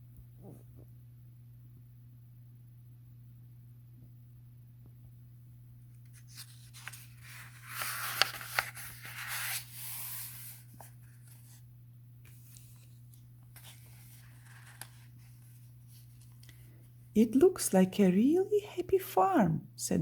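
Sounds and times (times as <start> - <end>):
low electrical hum: 0.0 - 20.0
paper rustling: 6.0 - 11.6, 12.3 - 16.8.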